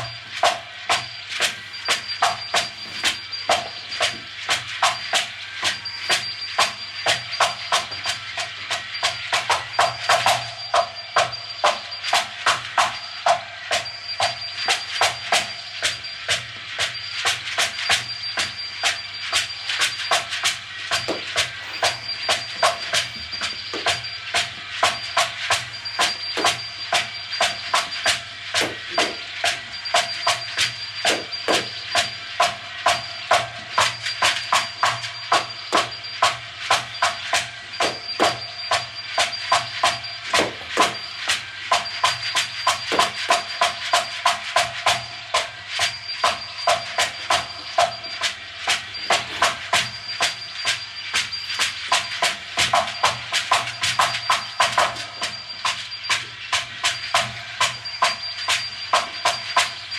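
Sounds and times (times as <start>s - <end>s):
clicking electronic percussion: 0.0s - 59.9s
held electronic tones: 0.0s - 59.9s.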